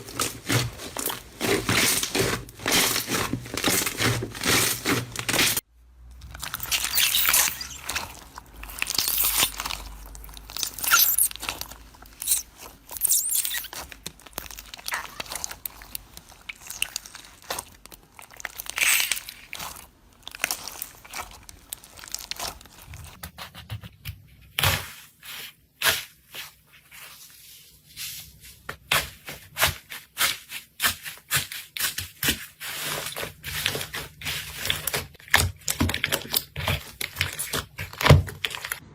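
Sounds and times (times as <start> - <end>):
slime crunching and crackling: 0.0 - 23.2, 28.9 - 38.9
slime squeezed and stretched: 6.2 - 23.2.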